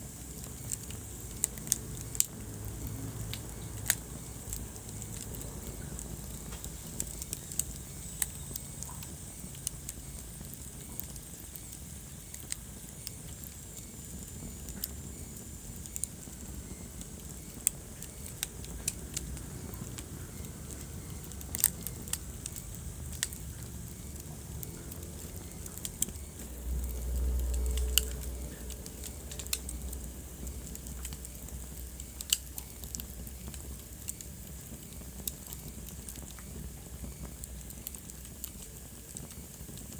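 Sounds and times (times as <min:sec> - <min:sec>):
wood fire crackling and popping: 0:00.0 - 0:39.9
low rumble: 0:18.4 - 0:32.2.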